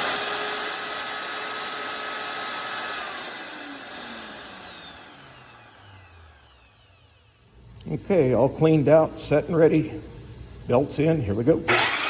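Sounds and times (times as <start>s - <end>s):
electric motor whining: 0.0s - 7.4s, 11.7s - 12.0s
motor coasting down: 1.2s - 7.4s, 11.7s - 12.0s.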